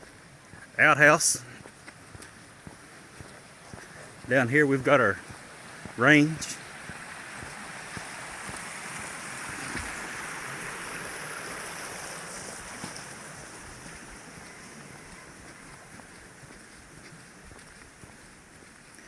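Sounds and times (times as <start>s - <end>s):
outdoor rushing noise: 4.0s - 15.0s.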